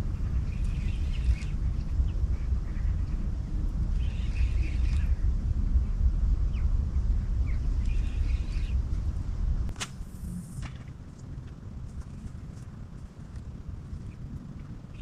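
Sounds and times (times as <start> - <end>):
small birds chirping: 0.0 - 9.1, 13.4 - 15.0
steady low rumble: 0.0 - 15.0.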